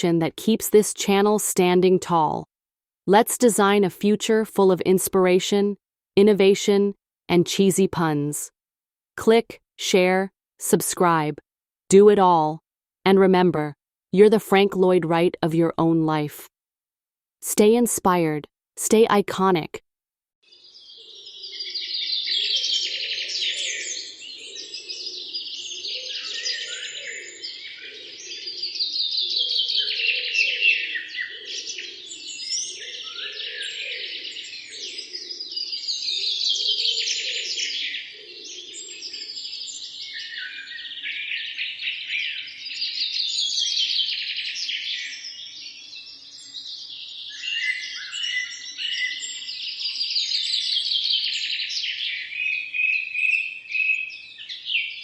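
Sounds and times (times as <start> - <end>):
birds chirping and trilling: 20.5 - 55.0.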